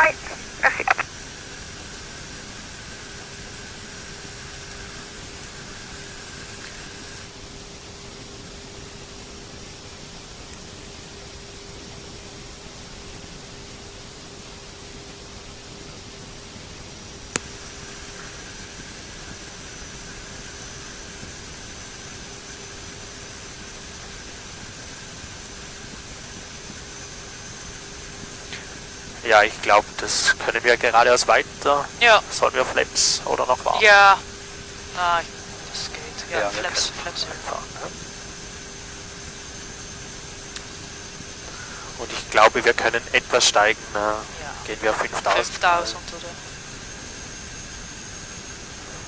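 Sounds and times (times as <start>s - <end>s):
high whines: 0.0s - 1.2s, 27.0s - 47.6s
faint steady hum: 0.0s - 49.0s
airplane cockpit hiss: 17.4s - 49.0s.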